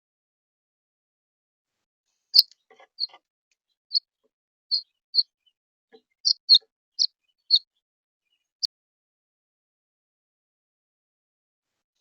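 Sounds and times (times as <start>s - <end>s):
small bird chirping: 2.4s - 3.2s, 3.9s - 4.1s, 4.7s - 8.7s.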